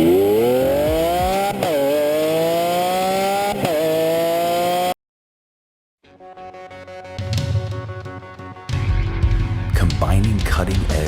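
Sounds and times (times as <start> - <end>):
car engine accelerating hard: 0.0 - 5.0.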